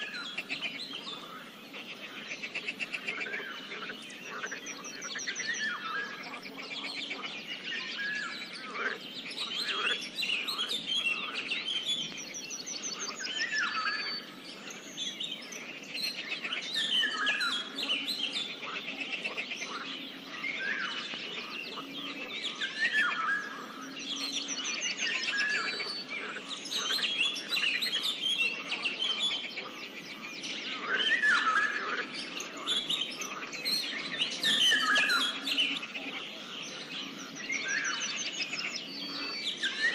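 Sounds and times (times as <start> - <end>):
birds chirping chorus: 0.0 - 39.9
frog croaks: 8.2 - 11.4.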